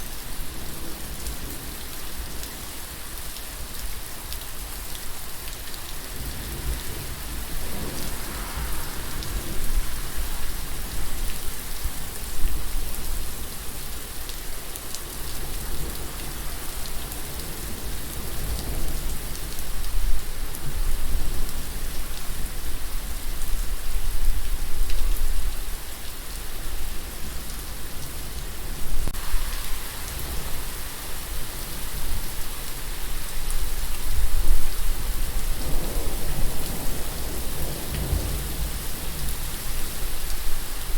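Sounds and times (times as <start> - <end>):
heavy rain falling: 0.0 - 40.9
low rumble: 7.4 - 11.2.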